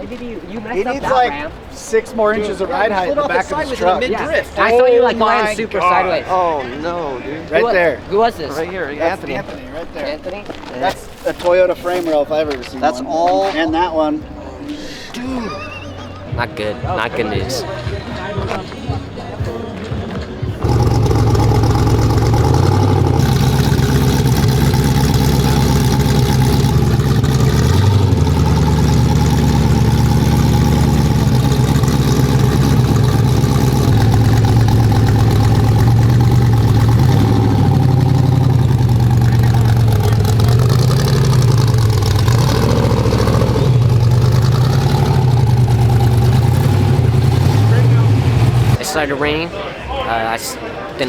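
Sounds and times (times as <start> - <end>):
truck engine running loud: 20.6 - 48.8.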